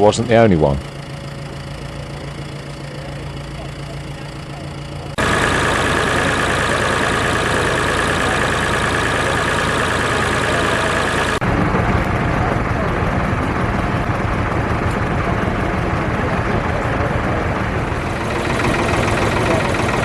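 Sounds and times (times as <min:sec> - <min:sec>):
high engine whine: 0:00.0 - 0:20.0
tractor engine idling: 0:00.0 - 0:20.0.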